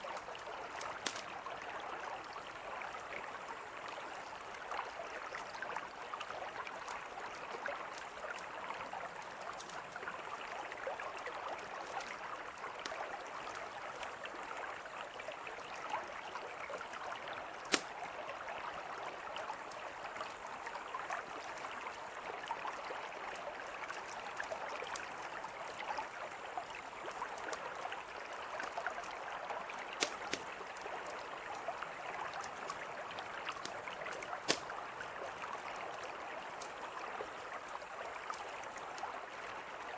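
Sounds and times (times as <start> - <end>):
campfire crackling and popping: 0.0 - 1.5, 9.1 - 14.2, 17.5 - 18.3, 29.7 - 31.2, 32.3 - 36.0
river flowing: 0.0 - 39.9.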